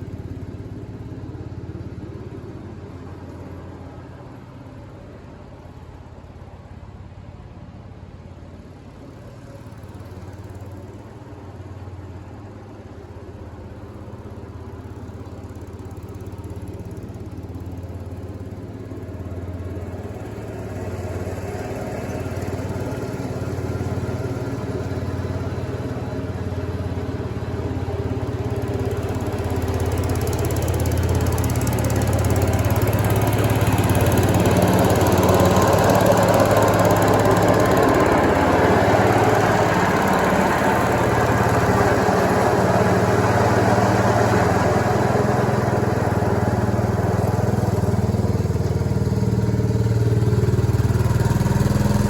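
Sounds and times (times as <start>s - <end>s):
garden tractor engine mowing: 19.4s - 52.0s.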